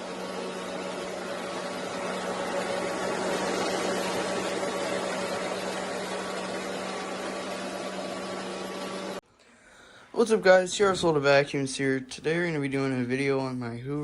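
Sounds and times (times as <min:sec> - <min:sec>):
vacuum cleaner running: 0:00.0 - 0:11.9.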